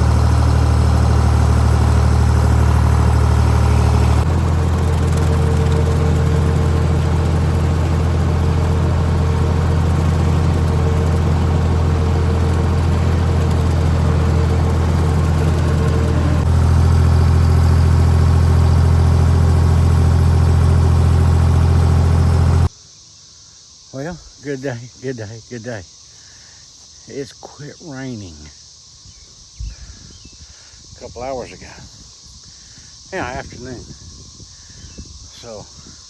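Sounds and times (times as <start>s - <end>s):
tractor engine running: 0.0s - 22.7s.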